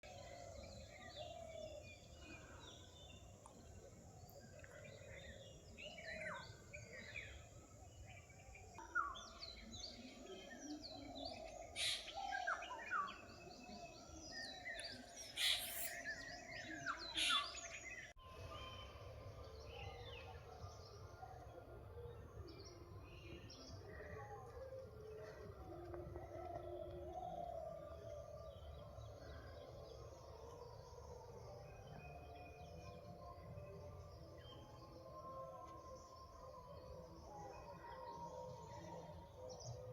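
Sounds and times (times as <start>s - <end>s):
birds chirping and whistling: 4.3s - 18.9s.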